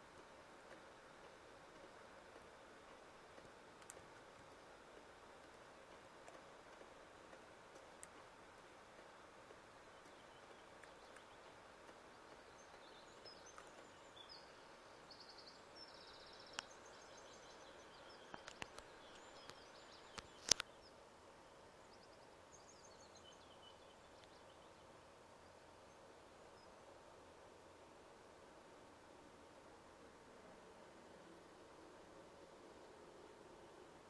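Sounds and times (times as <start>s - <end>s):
small birds chirping: 0.0s - 28.2s
sharp clicks: 3.4s - 4.6s, 18.3s - 20.7s.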